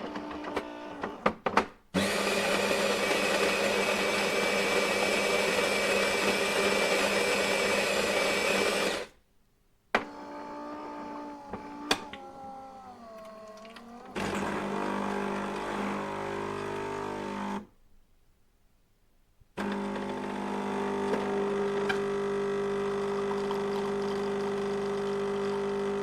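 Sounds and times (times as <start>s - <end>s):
electric coffee grinder running: 2.0s - 9.1s, 13.6s - 17.6s, 19.6s - 26.0s.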